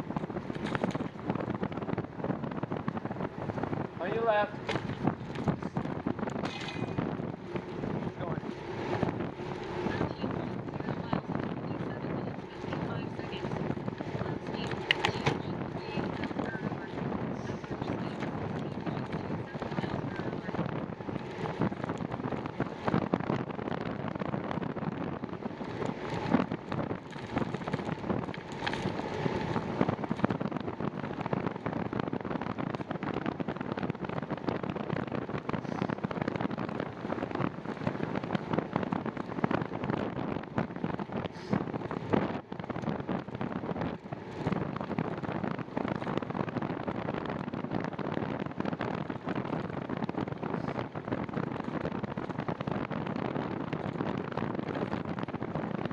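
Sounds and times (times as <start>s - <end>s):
bicycle tyre noise: 0.0s - 55.9s
wind buffeting microphone: 0.0s - 55.9s
bike clicks and knocks: 0.5s - 1.2s, 4.6s - 7.6s, 27.0s - 30.3s.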